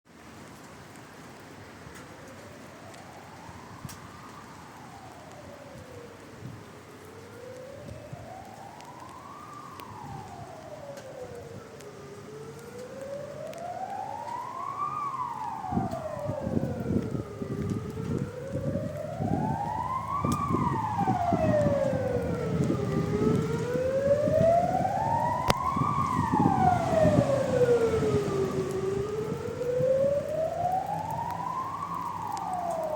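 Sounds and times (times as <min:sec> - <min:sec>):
siren wailing: 0:02.3 - 0:32.9
low rumbling noise: 0:14.0 - 0:32.9.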